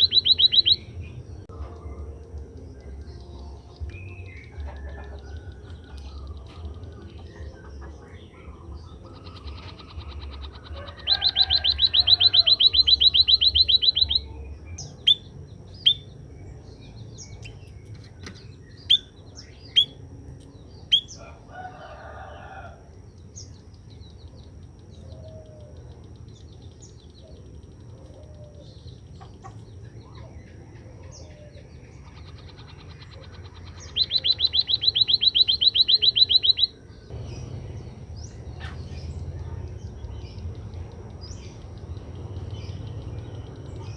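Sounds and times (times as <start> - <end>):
bird trills: 0.0 - 0.9, 9.0 - 16.1, 25.0 - 39.2
sharp bird chirps: 0.0 - 1.2, 1.8 - 21.3, 23.1 - 43.9.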